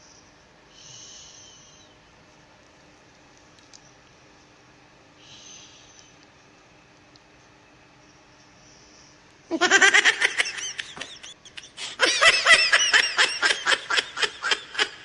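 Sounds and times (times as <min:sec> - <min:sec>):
person laughing high-pitched: 0:09.5 - 0:15.0.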